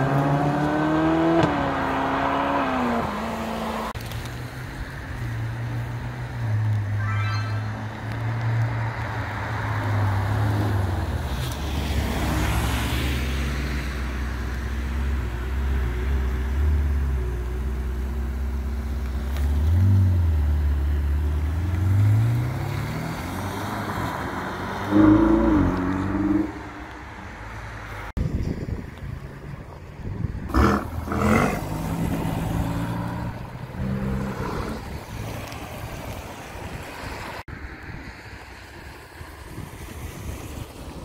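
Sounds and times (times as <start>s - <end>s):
sports car engine revving: 0.0s - 3.9s, 19.3s - 27.0s, 30.5s - 35.2s.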